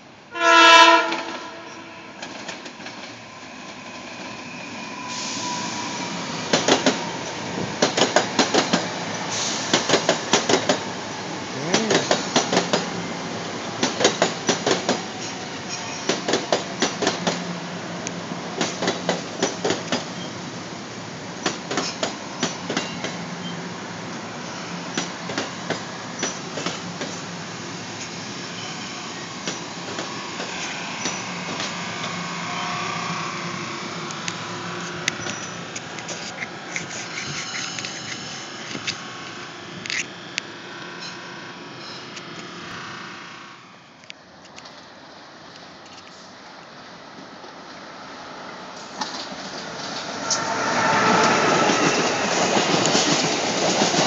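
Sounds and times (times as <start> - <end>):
passenger train rumbling past: 0.0 - 54.0
train horn blast: 0.3 - 2.2, 32.4 - 33.4, 50.0 - 52.2
wheels clacking over rail joints: 7.8 - 8.9, 9.7 - 10.8, 13.8 - 17.4, 18.6 - 20.2.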